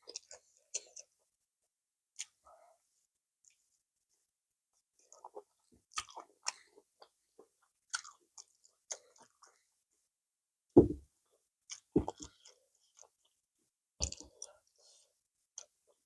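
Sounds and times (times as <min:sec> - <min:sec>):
wet chewing: 0:07.9 - 0:09.4
low thuds: 0:10.8 - 0:11.0.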